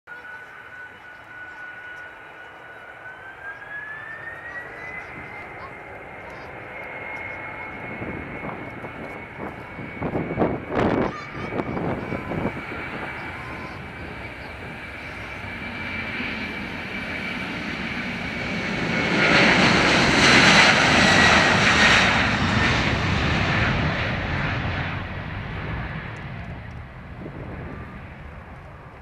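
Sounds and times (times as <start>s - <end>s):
high engine whine: 0.1s - 29.0s
jet airliner taking off: 0.1s - 29.0s.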